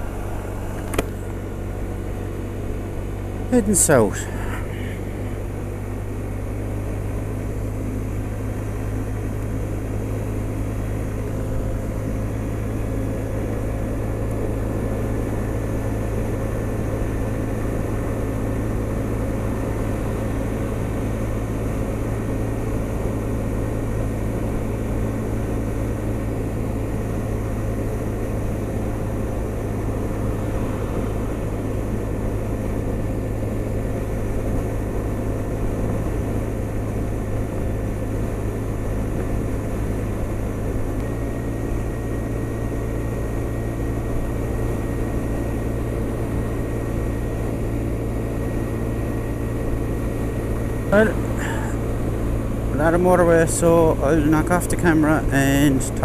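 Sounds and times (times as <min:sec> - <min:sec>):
road noise: 0:00.0 - 0:56.0
scooter engine droning: 0:00.0 - 0:56.0.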